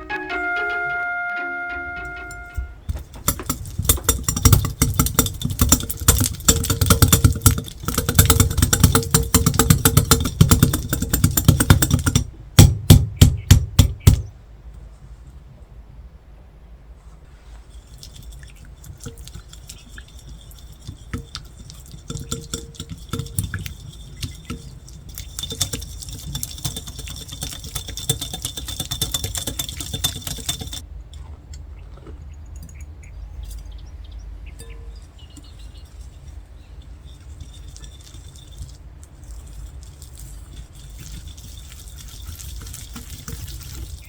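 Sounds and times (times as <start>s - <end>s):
utensil scraping a mixing bowl: 2.7s - 12.4s, 17.2s - 30.9s, 35.0s - 44.0s.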